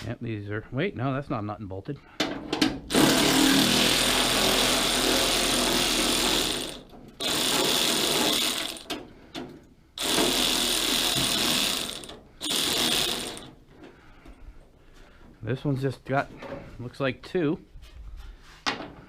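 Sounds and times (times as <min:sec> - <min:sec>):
cordless power tool running: 0:02.9 - 0:08.9, 0:10.0 - 0:13.6.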